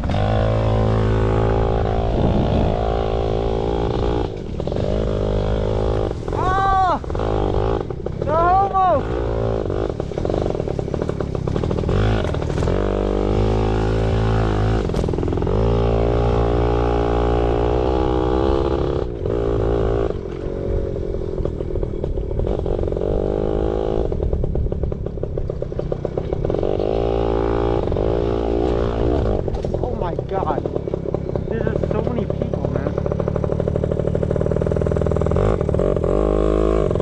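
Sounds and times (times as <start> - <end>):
bike rattling: 0.0 - 37.0
motorbike engine revving: 0.0 - 37.0.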